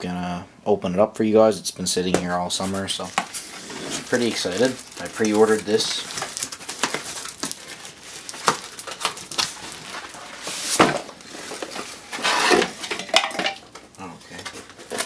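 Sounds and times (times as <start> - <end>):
cardboard scraping rustle: 2.6 - 13.0
cardboard packaging handled: 2.6 - 15.0.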